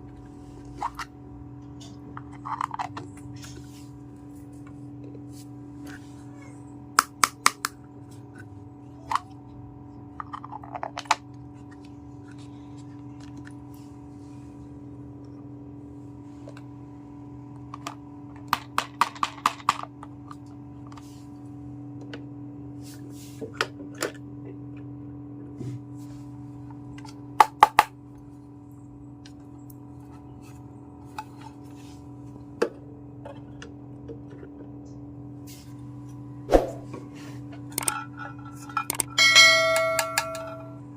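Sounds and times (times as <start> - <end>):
steady low hum: 20.0 - 40.9.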